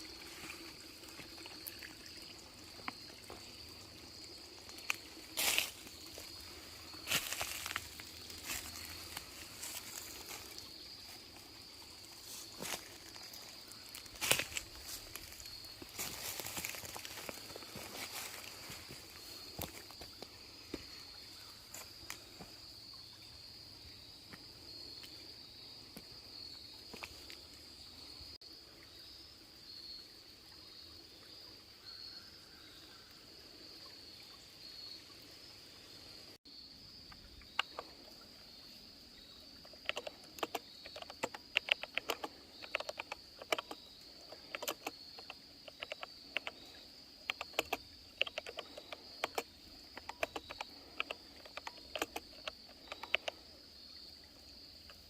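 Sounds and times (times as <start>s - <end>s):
insects droning: 0.0s - 55.0s
typing on a keyboard: 39.8s - 46.6s, 47.3s - 53.4s.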